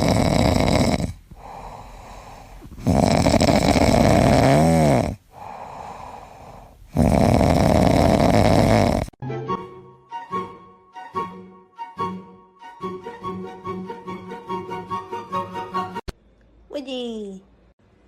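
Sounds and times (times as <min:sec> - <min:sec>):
loud snoring: 0:00.0 - 0:09.2
quiet breathing: 0:01.0 - 0:03.0, 0:05.0 - 0:07.2.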